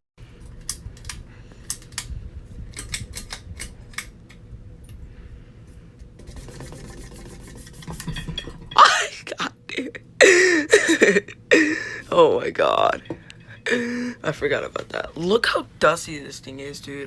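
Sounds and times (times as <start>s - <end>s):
ceiling fan motor whirring: 0.2s - 17.0s.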